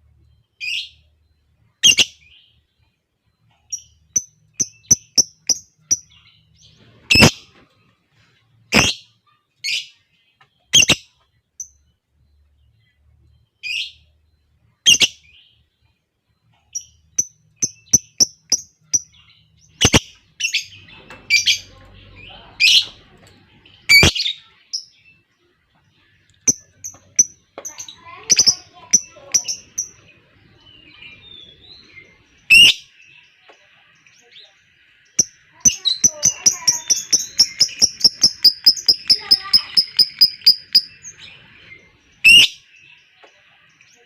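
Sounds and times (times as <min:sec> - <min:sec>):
birds chirping and squawking: 0:00.0 - 0:15.9, 0:16.5 - 0:44.0
lovebird chattering: 0:01.8 - 0:02.2, 0:03.8 - 0:06.1, 0:08.7 - 0:09.0, 0:10.7 - 0:11.0, 0:19.7 - 0:20.7, 0:26.4 - 0:30.0, 0:32.5 - 0:32.8, 0:35.2 - 0:41.2.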